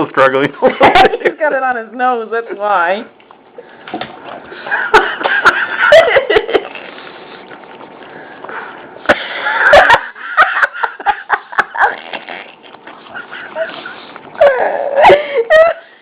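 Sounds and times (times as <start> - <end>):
dogs licking and smacking: 6.6 - 8.2
dogs sniffing: 11.9 - 14.4.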